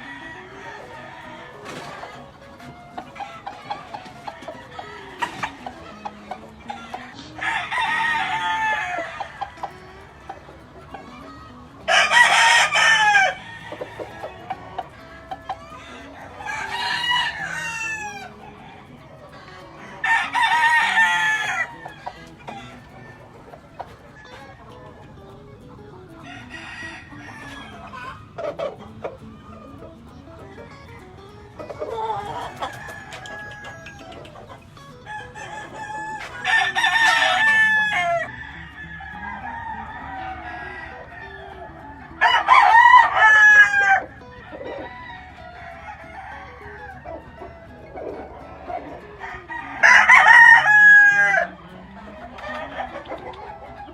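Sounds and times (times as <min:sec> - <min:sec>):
rooster crowing: 0:00.0 - 0:10.2, 0:11.0 - 0:24.8, 0:26.2 - 0:30.2, 0:31.7 - 0:53.9
chickens clucking: 0:00.0 - 0:53.9.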